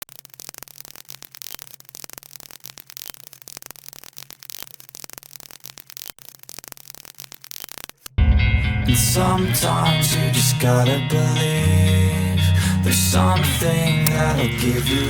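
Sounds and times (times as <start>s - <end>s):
crackling static: 0.0s - 15.0s
low hum: 8.2s - 15.0s.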